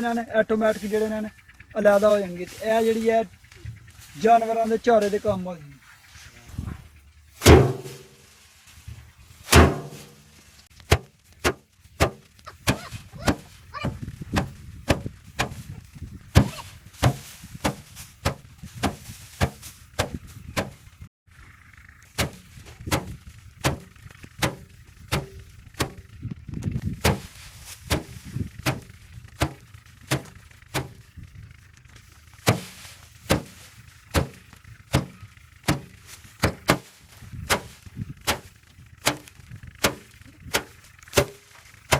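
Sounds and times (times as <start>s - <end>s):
rice bundles thwacking on drum: 7.4s - 20.9s, 22.1s - 31.2s, 31.9s - 41.9s.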